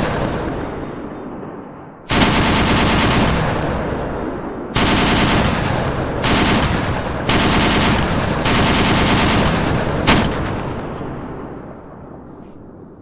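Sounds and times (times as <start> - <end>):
automatic gunfire bursts: 2.1 - 3.5, 4.8 - 10.6.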